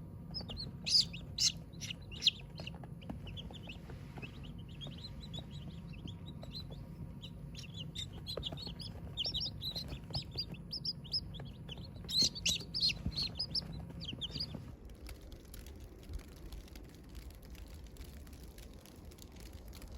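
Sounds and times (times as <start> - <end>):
steady low hum: 0.0 - 19.9
chicks peeping: 0.2 - 14.7.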